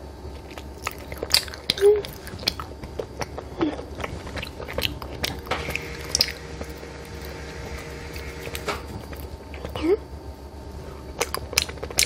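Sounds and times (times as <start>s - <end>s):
biting and chewing candy: 0.3s - 6.8s, 11.0s - 12.0s.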